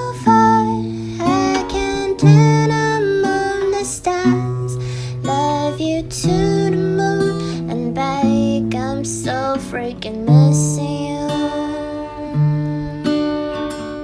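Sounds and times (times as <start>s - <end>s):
acoustic guitar chords: 0.0s - 14.0s.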